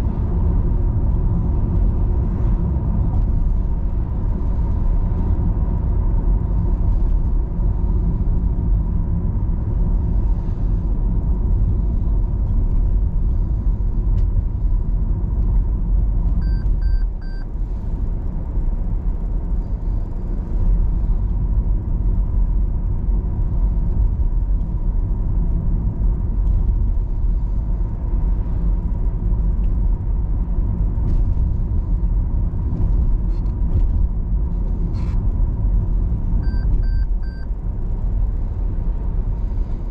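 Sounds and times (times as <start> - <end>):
car road and engine noise: 0.0 - 39.9
short high-pitched beeps: 16.4 - 17.5, 36.4 - 37.5.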